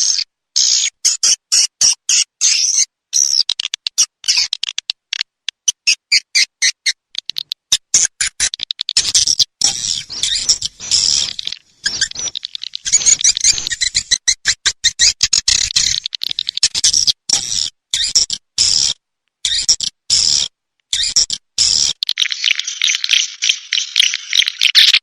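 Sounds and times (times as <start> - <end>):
swiftlet clicks and twittering chirps: 3.2 - 18.9, 19.5 - 25.0.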